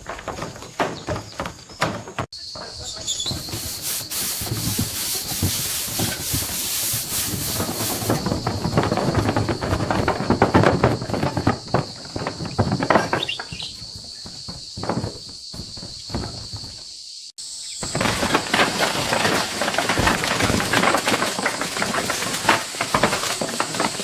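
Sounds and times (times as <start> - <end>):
sanding wood: 3.3 - 8.3.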